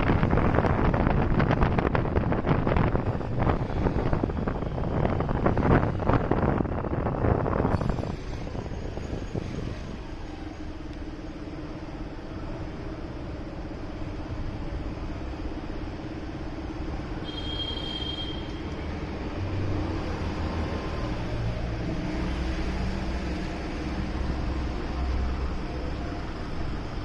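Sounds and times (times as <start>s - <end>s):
wind on microphone: 0.0s - 10.3s
road noise: 0.0s - 27.0s.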